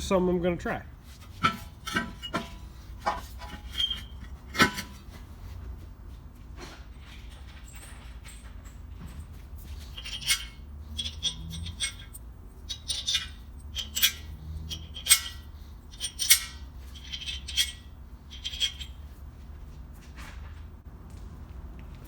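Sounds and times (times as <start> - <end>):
metal tools clinking: 7.0 - 19.1.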